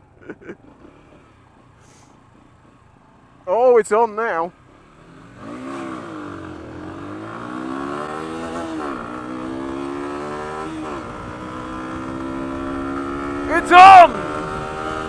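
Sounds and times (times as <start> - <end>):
motorcycle engine accelerating: 4.6 - 15.0.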